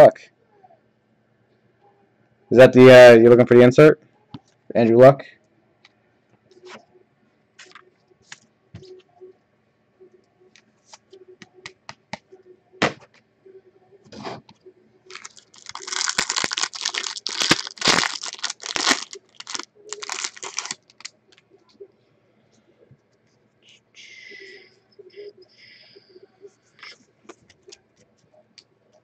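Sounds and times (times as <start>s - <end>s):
wrapper tearing and crinkling: 15.1s - 21.2s.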